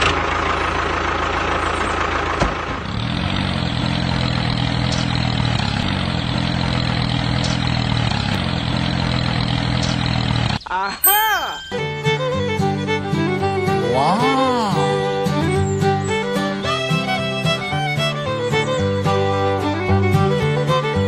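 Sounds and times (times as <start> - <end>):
tractor engine idling: 0.0 - 10.8.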